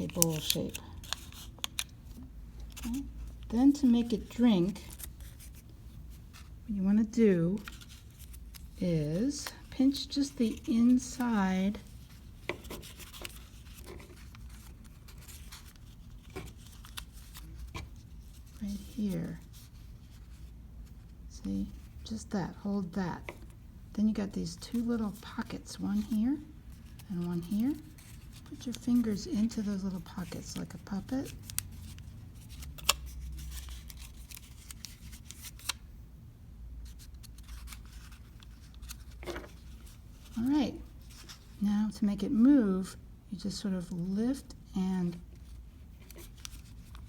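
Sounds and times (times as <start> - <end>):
soft paper clicks: 0.0 - 3.5, 7.6 - 8.8, 12.1 - 18.6, 31.2 - 35.8, 46.0 - 47.0
paper rustling and crinkling: 0.0 - 22.1, 24.4 - 35.9, 36.8 - 41.6, 45.1 - 47.0.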